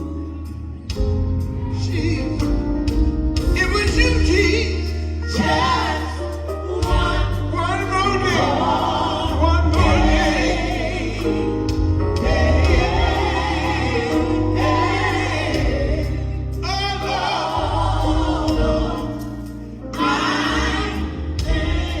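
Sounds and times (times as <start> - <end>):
drums: 0.0 - 22.0
voices singing gospel: 0.0 - 22.0.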